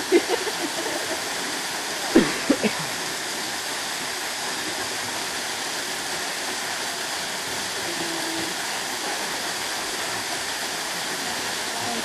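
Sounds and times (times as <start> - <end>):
waterfall pouring into pool: 0.0 - 12.0.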